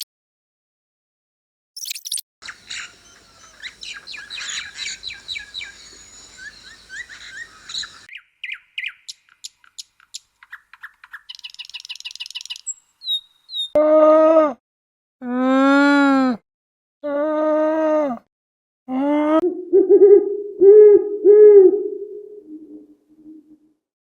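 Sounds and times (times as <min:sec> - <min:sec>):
bird trill: 0:01.8 - 0:13.8
birds chirping: 0:02.0 - 0:13.8
background hiss: 0:02.4 - 0:08.1.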